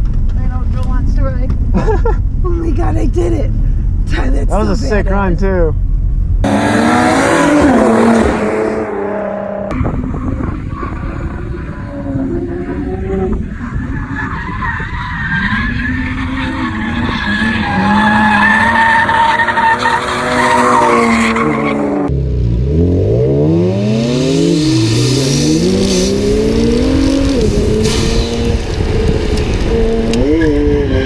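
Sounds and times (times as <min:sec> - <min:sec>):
car engine revving hard: 0:06.4 - 0:13.4, 0:20.1 - 0:31.0
tires skidding: 0:06.4 - 0:22.1, 0:23.4 - 0:31.0.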